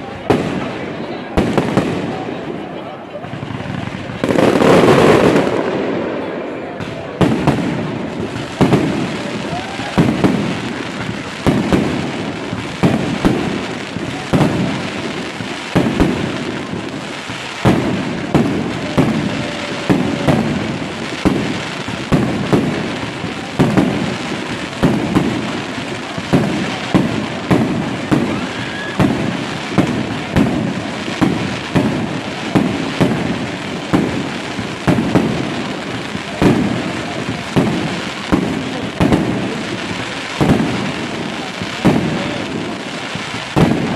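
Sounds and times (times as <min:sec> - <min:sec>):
fireworks bursting: 0:00.0 - 0:43.9
fireworks crackling: 0:00.0 - 0:43.9.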